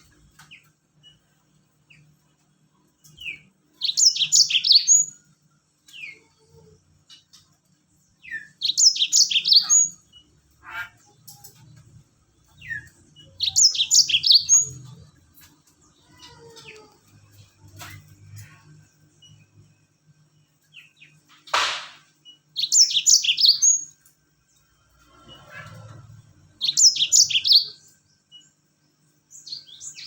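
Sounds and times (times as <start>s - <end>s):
canary singing: 3.0s - 5.3s, 8.1s - 19.4s, 22.6s - 24.0s, 25.2s - 28.5s.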